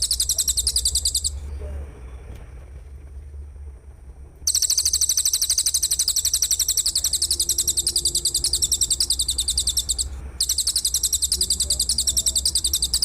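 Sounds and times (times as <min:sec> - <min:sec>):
pulsed insect trill: 0:00.0 - 0:01.5, 0:04.5 - 0:13.0.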